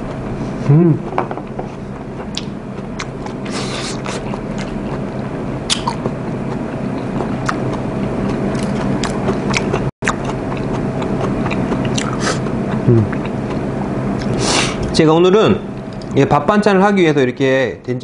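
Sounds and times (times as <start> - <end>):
person chewing: 2.2 - 5.1, 5.7 - 14.9.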